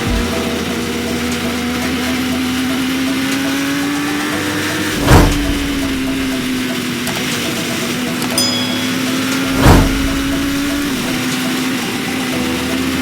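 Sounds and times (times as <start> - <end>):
motorcycle engine running: 0.0 - 8.2, 9.0 - 13.0
sharp thump: 5.0 - 6.6, 9.5 - 11.2.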